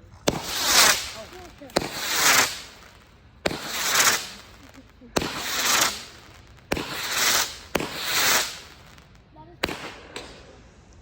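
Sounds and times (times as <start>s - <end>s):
firework hiss: 0.0s - 11.0s
firework launch thumps: 0.2s - 8.9s.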